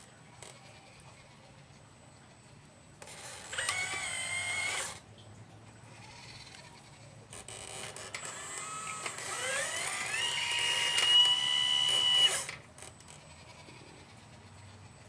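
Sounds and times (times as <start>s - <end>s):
faint hum: 0.0s - 15.0s
small electric motor whining: 3.0s - 5.0s, 5.9s - 15.0s.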